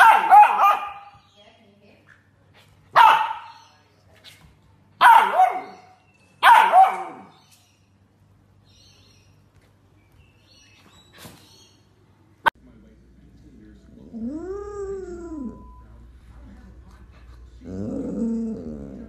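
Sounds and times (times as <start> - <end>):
puppy barking: 0.0 - 1.3, 2.9 - 3.7, 5.0 - 7.4.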